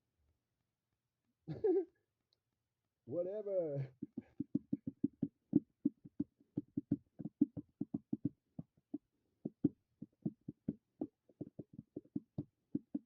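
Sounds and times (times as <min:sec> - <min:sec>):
short dull thumps: 0:03.8 - 0:13.0.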